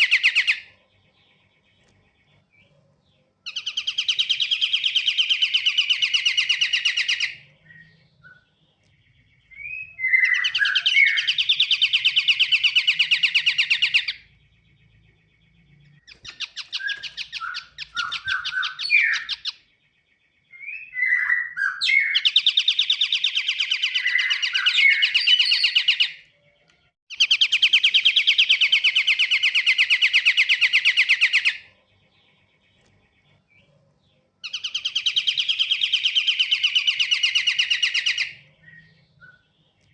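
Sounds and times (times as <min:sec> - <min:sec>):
bird buzzy trills: 0:00.0 - 0:39.9.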